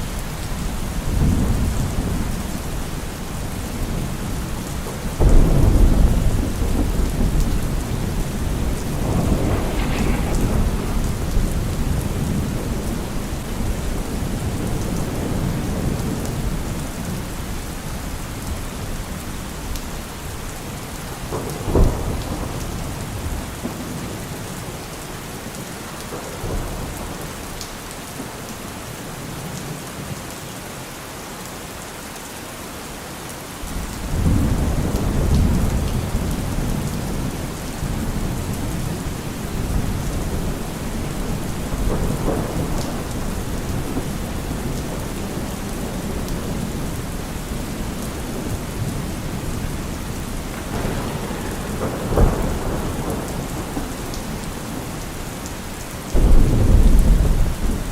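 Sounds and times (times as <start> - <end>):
rolling thunder: 0.0 - 24.9, 33.7 - 57.9
steady rain falling: 0.0 - 57.9
sharp thunderclap: 5.0 - 17.1, 33.8 - 55.4, 56.1 - 57.9.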